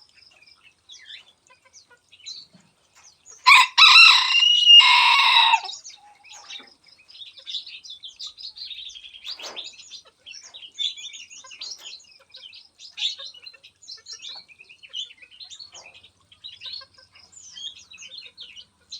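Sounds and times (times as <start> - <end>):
songbirds chirping: 0.0 - 18.9
rooster crowing: 3.4 - 5.8.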